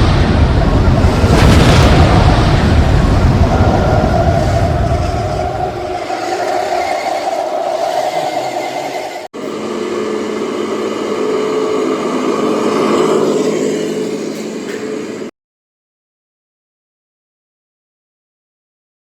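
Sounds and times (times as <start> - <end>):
model vehicle motor running: 6.2 - 15.3.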